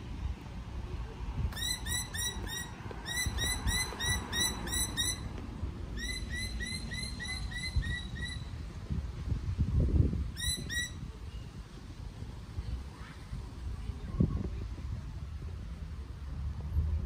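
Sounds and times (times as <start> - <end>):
bird chirping: 1.6 - 5.3, 5.9 - 8.6, 10.4 - 11.5.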